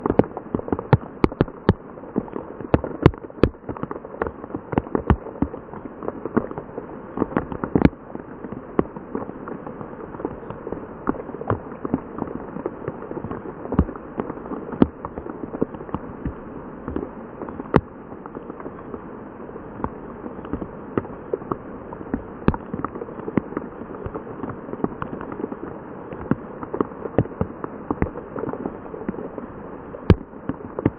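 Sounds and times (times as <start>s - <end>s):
sharp raindrops striking: 0.0s - 19.0s.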